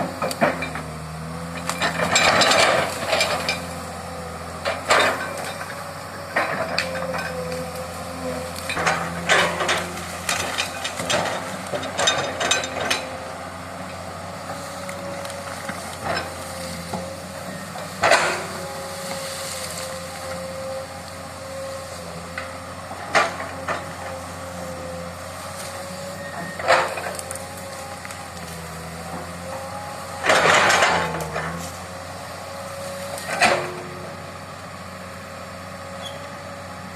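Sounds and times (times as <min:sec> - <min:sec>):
excavator engine drone: 0:00.0 - 0:36.9
metallic clanks from tracks: 0:08.6 - 0:13.2.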